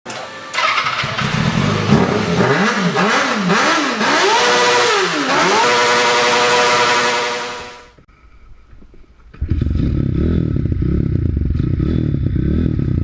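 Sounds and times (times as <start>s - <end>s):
motorcycle engine revving: 0.1s - 7.8s, 9.4s - 13.0s.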